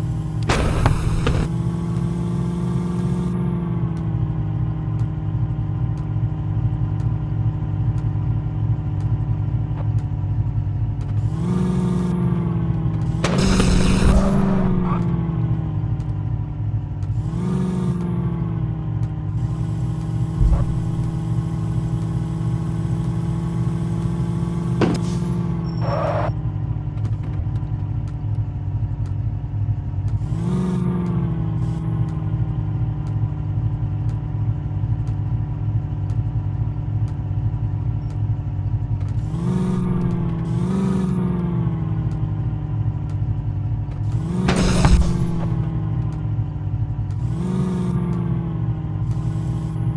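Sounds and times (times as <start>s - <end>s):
tractor diesel engine revving: 11.1s - 15.8s, 17.0s - 26.3s, 39.0s - 42.8s, 43.8s - 49.9s.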